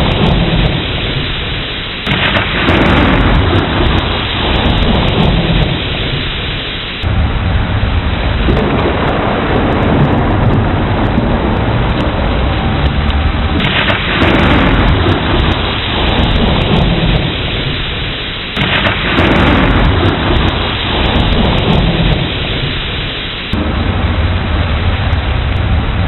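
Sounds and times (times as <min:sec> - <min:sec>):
steady rain: 0:00.0 - 0:26.0
thunder rolling: 0:00.0 - 0:26.0.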